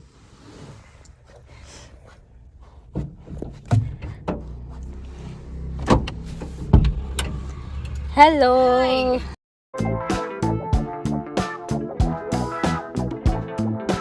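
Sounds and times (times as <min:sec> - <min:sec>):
car door opening: 0:05.7 - 0:08.0.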